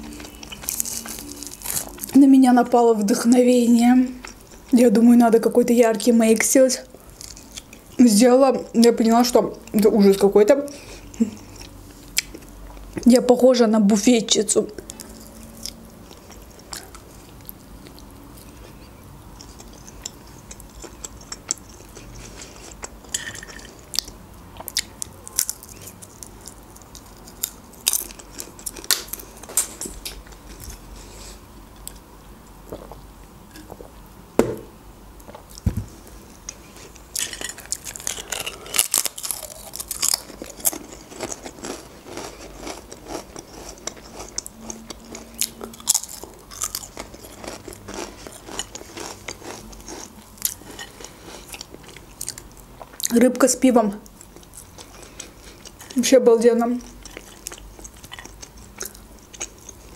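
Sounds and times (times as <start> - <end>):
chewing with wet mouth clicks: 0.0 - 2.2, 14.8 - 30.7, 56.8 - 59.9
potato chips crunching: 0.0 - 2.2, 19.4 - 30.8, 36.5 - 53.2.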